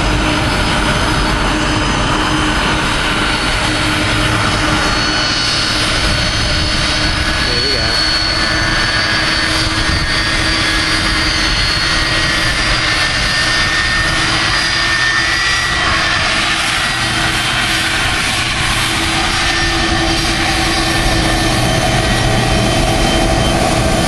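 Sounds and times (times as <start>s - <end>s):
jet blast noise: 0.0s - 24.0s
jet engine whine: 0.0s - 24.0s.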